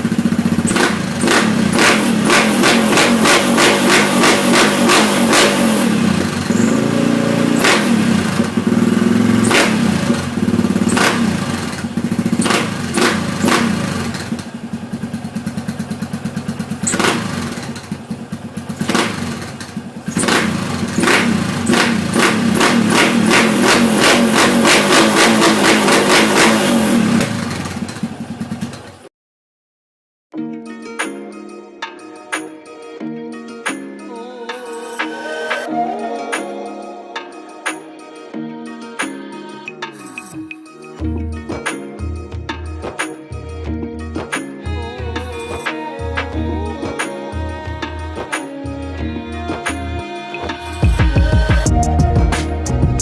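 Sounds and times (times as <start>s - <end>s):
motorcycle engine revving: 0.0s - 29.1s.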